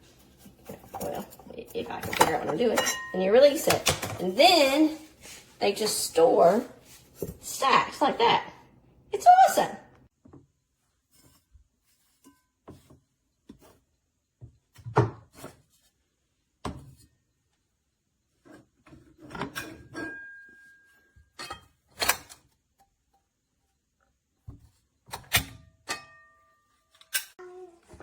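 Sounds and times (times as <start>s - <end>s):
pots and pans clanking: 0.4s - 4.3s, 19.3s - 22.2s.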